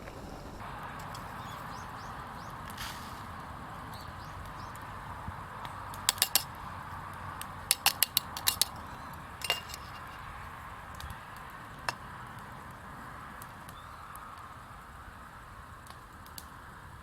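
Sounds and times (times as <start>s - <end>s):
metal utensil tapping cookware: 5.9s - 6.5s, 7.7s - 8.8s, 9.4s - 10.3s.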